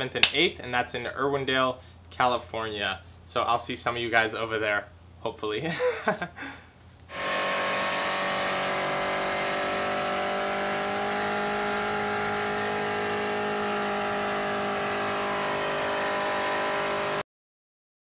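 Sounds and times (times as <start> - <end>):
car engine at high revs: 7.1 - 17.2.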